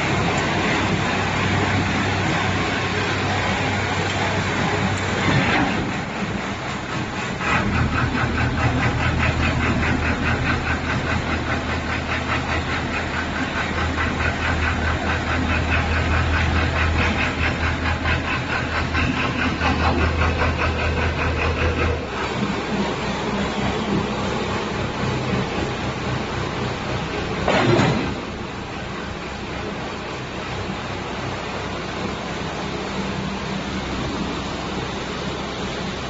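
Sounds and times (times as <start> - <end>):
drilling rig engine drone: 0.0 - 36.0
rapid even clatter: 3.2 - 26.1, 27.3 - 28.6.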